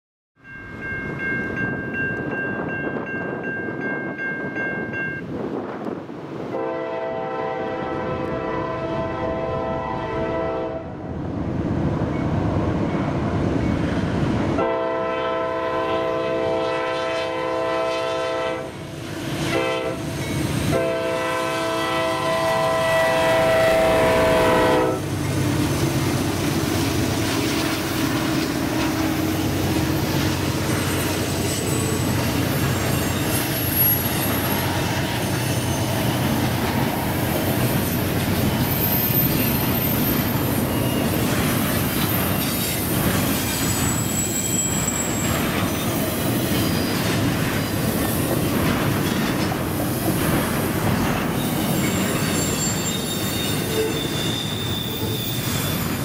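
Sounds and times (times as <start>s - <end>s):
diesel locomotives rumbling by: 0.4s - 56.0s
locomotive horn blasts: 6.5s - 11.0s, 14.6s - 18.8s, 19.5s - 20.1s, 20.7s - 25.1s
faint high wheel squeal: 30.0s - 36.3s, 37.3s - 47.0s, 51.4s - 56.0s.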